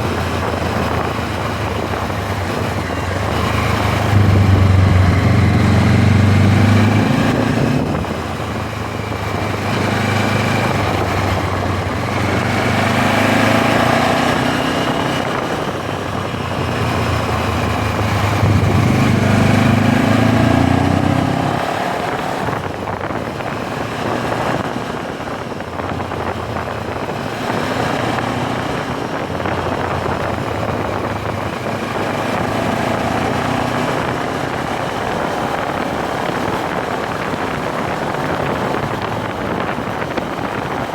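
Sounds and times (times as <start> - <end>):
motorcycle engine under way: 0.0 - 40.9
rushing wind and road noise: 0.0 - 40.9.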